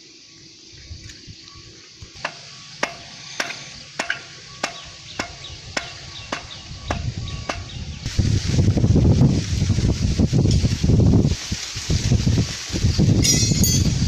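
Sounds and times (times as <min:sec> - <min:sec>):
sharp ringing knocks: 0:02.2 - 0:07.8, 0:13.2 - 0:14.0.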